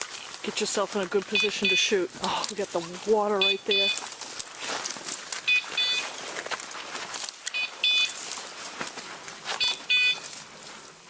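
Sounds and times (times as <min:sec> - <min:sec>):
brush rustling: 0:00.0 - 0:11.0
footsteps: 0:00.0 - 0:11.0
double electronic beep: 0:03.4 - 0:04.0, 0:05.5 - 0:06.0, 0:07.6 - 0:08.2, 0:09.6 - 0:10.2.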